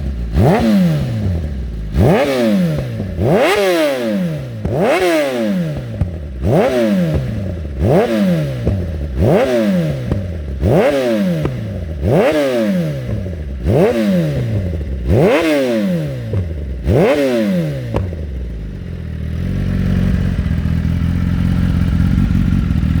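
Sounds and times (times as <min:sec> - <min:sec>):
motorcycle engine revving and idling: 0:00.0 - 0:23.0.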